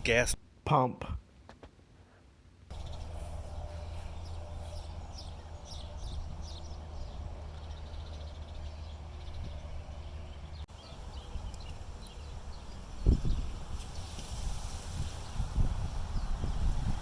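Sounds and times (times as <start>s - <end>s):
steady low rumble: 2.7s - 13.4s
small birds chirping: 2.7s - 14.4s.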